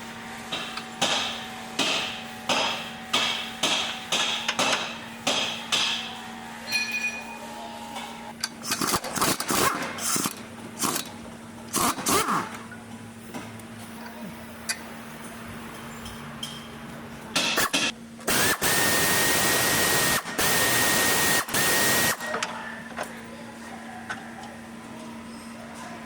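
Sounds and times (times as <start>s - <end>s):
hammer striking metal: 0.5s - 7.4s
metallic ring: 6.6s - 7.5s.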